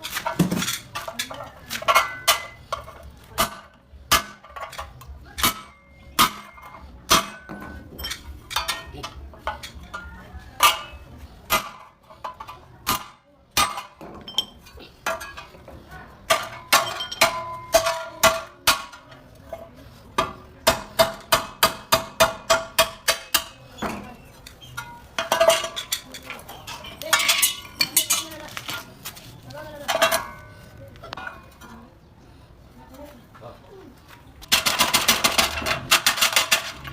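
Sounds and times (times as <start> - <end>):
hammer clanging on sheet metal: 0.2 - 15.5, 20.2 - 24.1.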